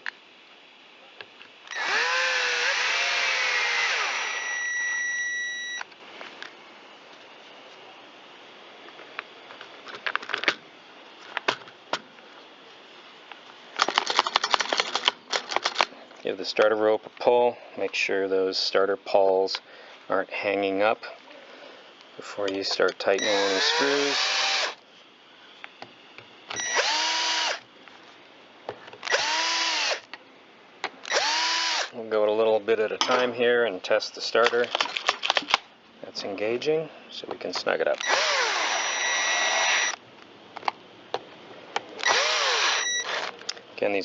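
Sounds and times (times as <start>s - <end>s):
cordless drill motor whine: 1.7s - 5.9s, 23.2s - 24.8s, 26.5s - 27.7s, 29.0s - 30.1s, 31.0s - 31.9s, 38.0s - 40.0s, 42.0s - 43.4s
chainsaw parts clicking and rattling: 13.8s - 15.9s, 34.4s - 35.6s.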